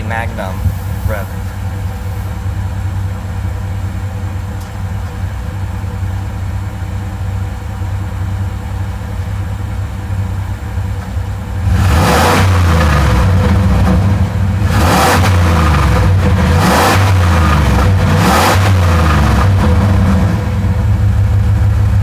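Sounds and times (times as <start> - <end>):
truck engine idling: 0.0 - 22.0
engine revving sharply: 11.6 - 20.8.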